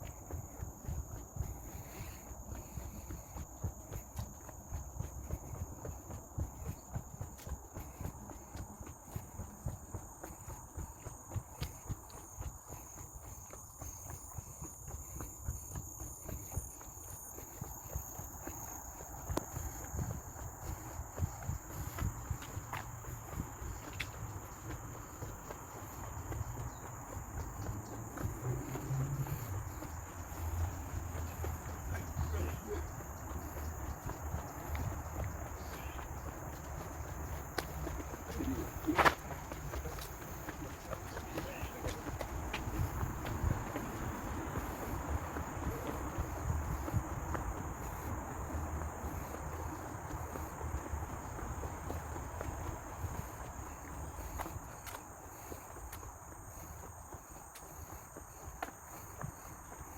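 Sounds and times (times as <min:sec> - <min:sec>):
insects droning: 0:00.0 - 0:59.9
low uneven rumble: 0:26.1 - 0:50.3.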